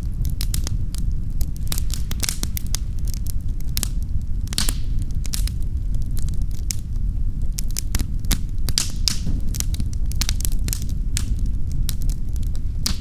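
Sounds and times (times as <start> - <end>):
fire crackling and popping: 0.0 - 13.0
low rumble of fire: 0.0 - 13.0.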